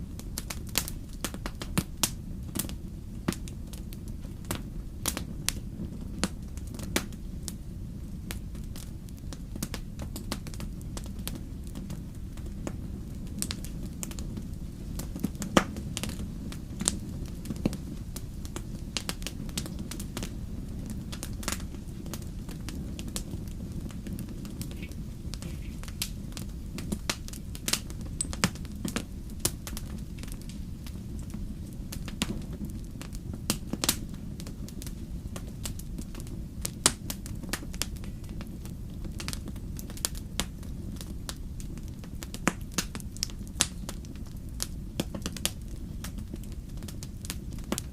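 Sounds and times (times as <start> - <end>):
wood fire crackling: 0.0 - 47.9.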